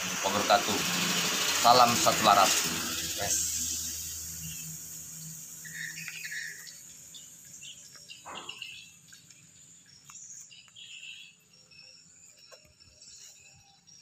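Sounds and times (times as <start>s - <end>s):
faint small bird chirps: 3.2s - 14.0s.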